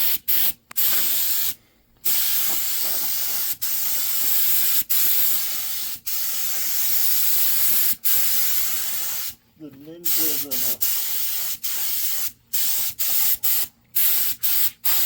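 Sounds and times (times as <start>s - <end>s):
paint spray gun hissing: 0.0s - 9.4s, 10.1s - 15.0s.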